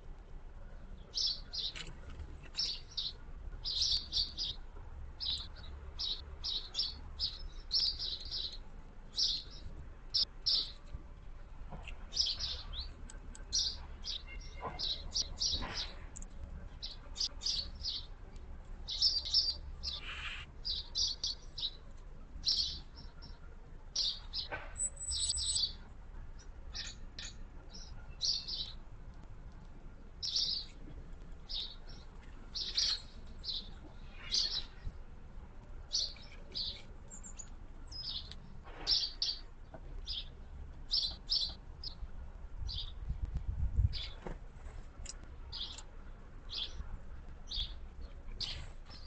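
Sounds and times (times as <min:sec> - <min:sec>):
small birds chirping: 0:00.8 - 0:10.9, 0:11.8 - 0:35.0, 0:35.6 - 0:44.3, 0:44.9 - 0:49.0
faint low rumble: 0:41.6 - 0:49.0.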